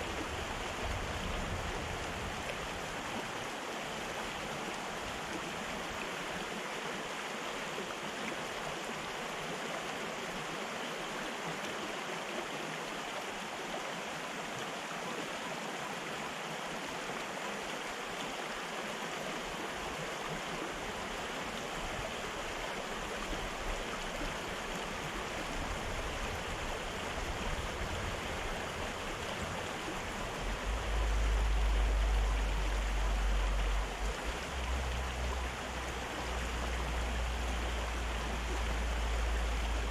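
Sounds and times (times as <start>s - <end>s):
river rushing: 0.0s - 39.9s
deep low rumble: 30.1s - 35.7s.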